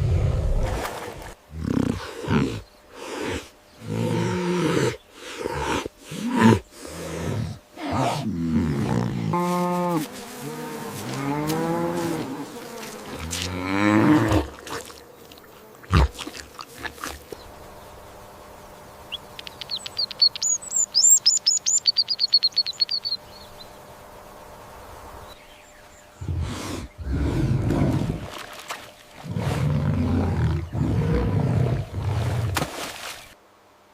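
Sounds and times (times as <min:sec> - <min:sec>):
rapid high chirps: 0:19.1 - 0:23.2.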